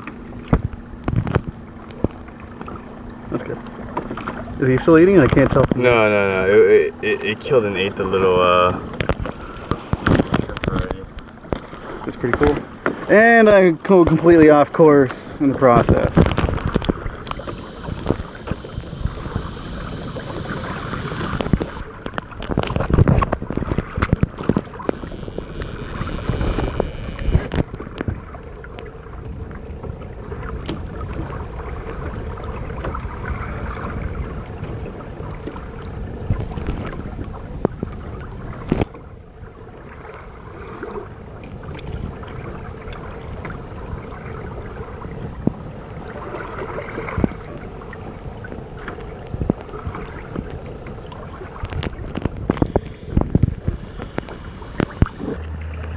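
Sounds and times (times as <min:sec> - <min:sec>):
water splashing along hull: 0:00.0 - 0:55.9
wind buffeting microphone: 0:15.4 - 0:39.7, 0:41.1 - 0:55.4.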